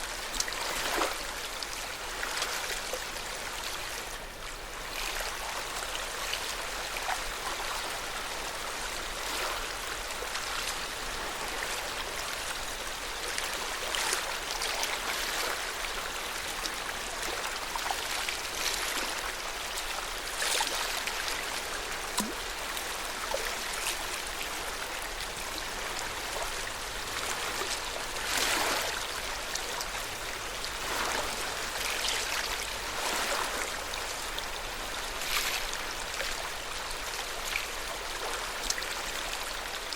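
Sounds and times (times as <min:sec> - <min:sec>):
small water splashes: 0:00.0 - 0:01.6, 0:13.2 - 0:39.9
lake water lapping at shore: 0:00.1 - 0:03.0, 0:08.8 - 0:12.4, 0:13.2 - 0:39.9.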